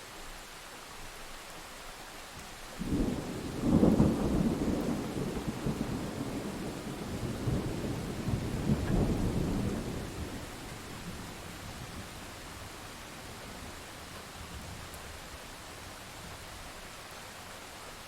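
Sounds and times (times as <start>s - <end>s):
steady rain: 0.0s - 18.0s
thunder rolling: 2.8s - 11.2s.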